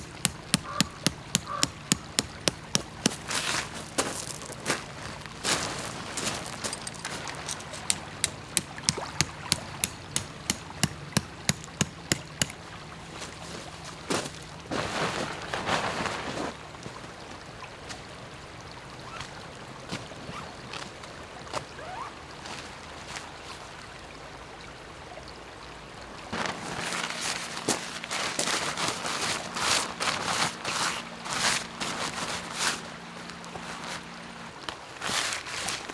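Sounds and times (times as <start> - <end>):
sharp evenly spaced knocks: 0.0 - 3.4, 6.7 - 12.7
rustling: 0.0 - 16.6, 26.4 - 32.9.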